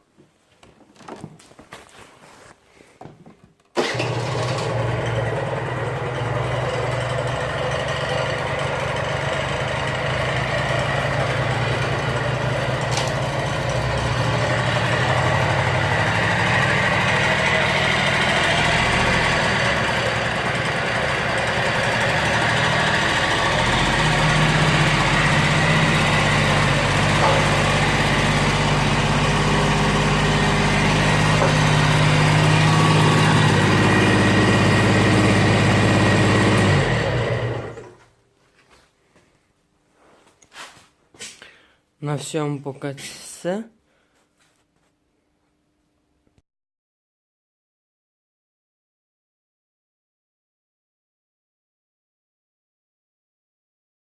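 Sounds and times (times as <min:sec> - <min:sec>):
scooter engine running: 0:03.8 - 0:38.0.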